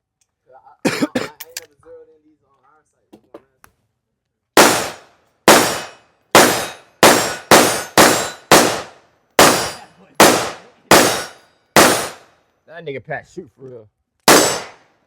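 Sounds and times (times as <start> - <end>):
gunshots: 4.6 - 12.3, 14.3 - 14.9.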